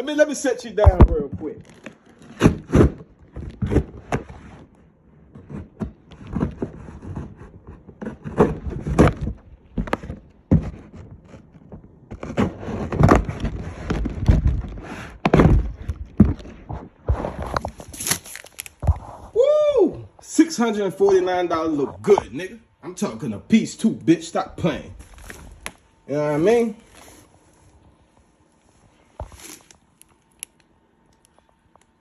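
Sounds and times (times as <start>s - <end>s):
boxes being moved about: 0.8s - 4.8s, 5.4s - 19.4s, 24.6s - 30.0s.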